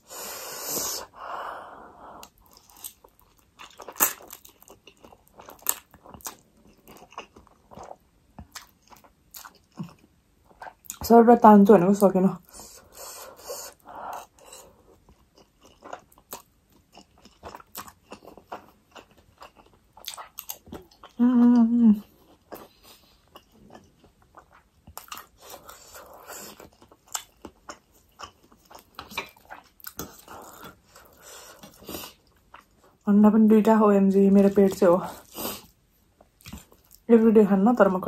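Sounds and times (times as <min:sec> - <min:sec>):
chewing noodles: 0:02.2 - 0:11.0, 0:12.4 - 0:21.2, 0:22.0 - 0:33.0.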